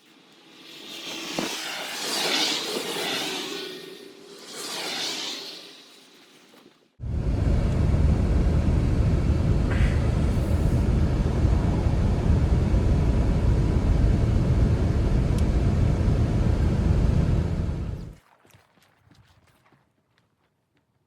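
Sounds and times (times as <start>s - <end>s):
strong wind blowing: 7.0s - 18.2s.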